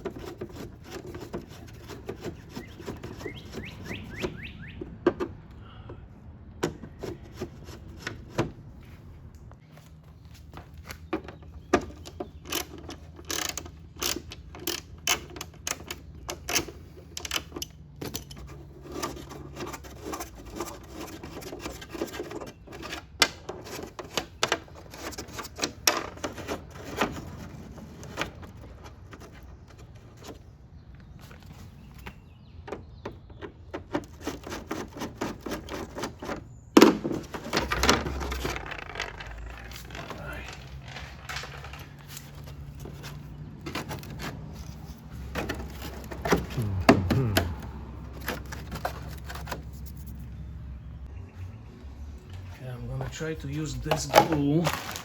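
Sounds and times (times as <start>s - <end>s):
clicks and knocks of tools: 10.8s - 27.5s.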